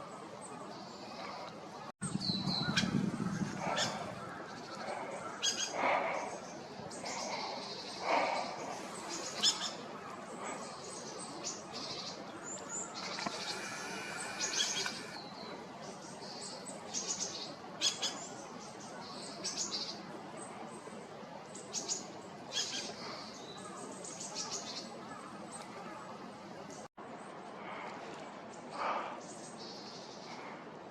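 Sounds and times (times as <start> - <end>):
small birds chirping: 0.6 - 20.9.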